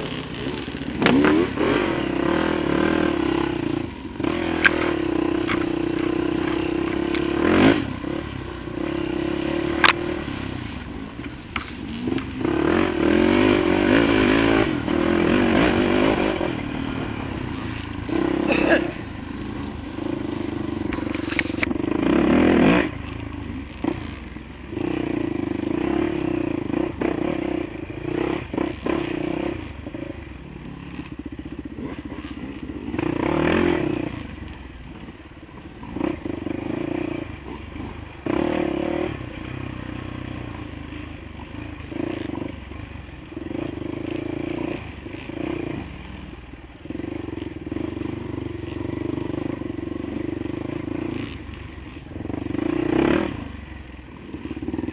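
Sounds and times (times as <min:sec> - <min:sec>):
bike rattling over bumps: 0:00.0 - 0:02.2
dirt bike engine revving: 0:00.0 - 0:54.9.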